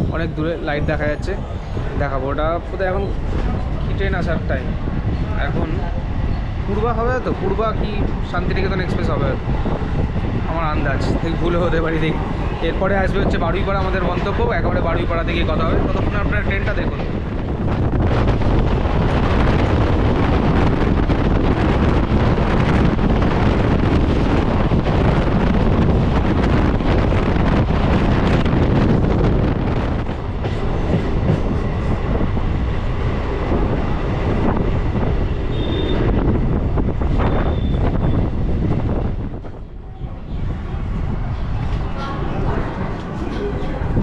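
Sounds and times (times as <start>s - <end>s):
train wheels rumbling on track: 0.0s - 44.0s
high squeal: 37.2s - 38.2s.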